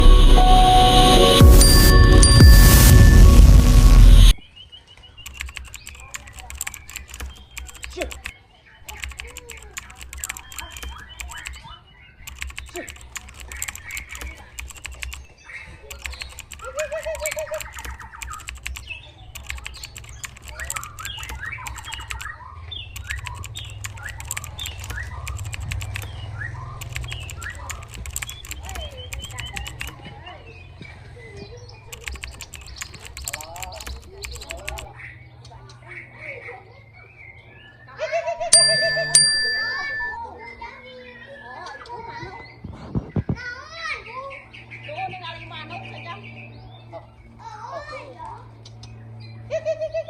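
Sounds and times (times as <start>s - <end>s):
loud music: 0.0s - 4.4s
bird clicking and chirping: 5.2s - 30.1s, 31.8s - 35.8s, 48.6s - 49.0s.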